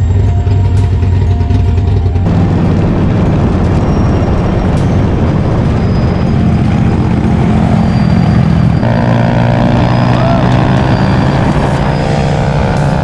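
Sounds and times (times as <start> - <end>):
motorcycle engine running: 0.0 - 13.0
wind rush: 0.0 - 13.0.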